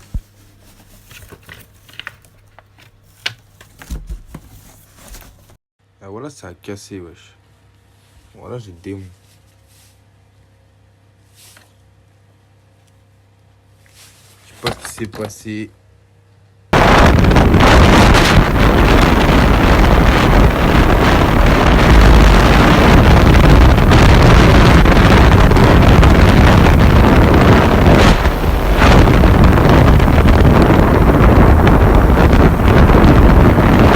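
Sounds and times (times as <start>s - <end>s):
wind buffeting microphone: 16.8s - 33.9s.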